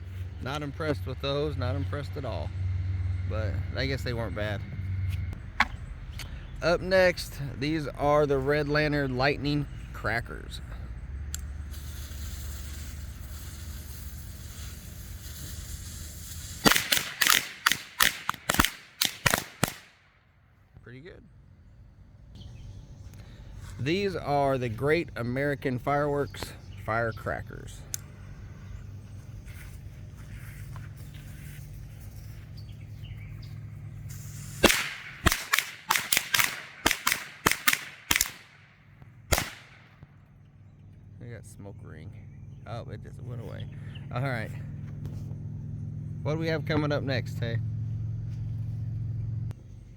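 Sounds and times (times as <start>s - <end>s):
low steady rumble: 0.0s - 49.9s
fuse hissing: 11.4s - 17.3s, 34.0s - 35.2s
firecracker bangs: 11.7s - 20.0s, 34.1s - 38.6s, 39.3s - 40.1s.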